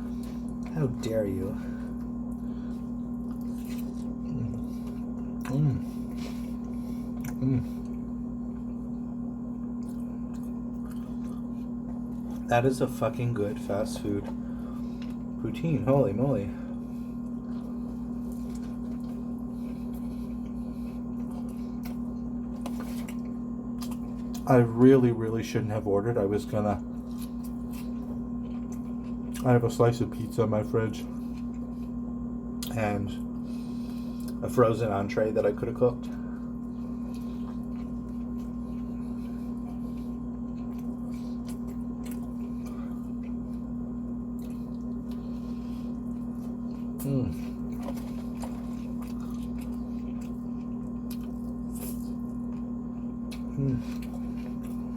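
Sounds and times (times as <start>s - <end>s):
electrical hum: 0.0s - 54.9s
wet mouth sounds from eating: 2.3s - 9.0s.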